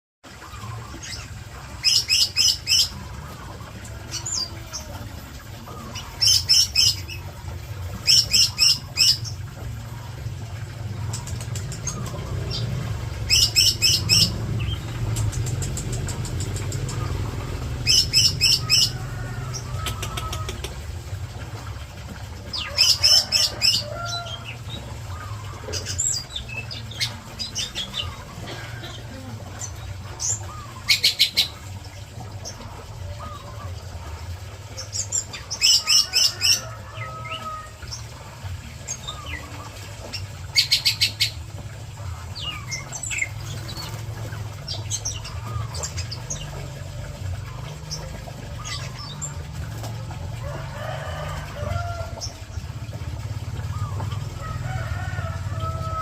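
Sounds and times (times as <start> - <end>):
leafbirds chirping: 0.4 - 21.7.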